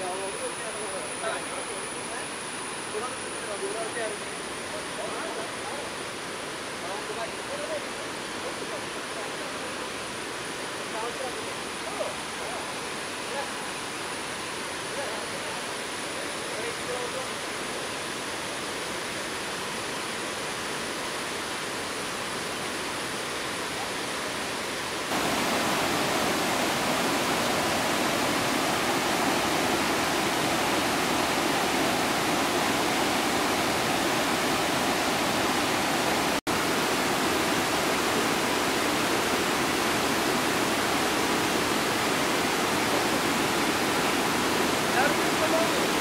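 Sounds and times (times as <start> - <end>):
waterfall roaring over rocks: 0.0 - 46.0.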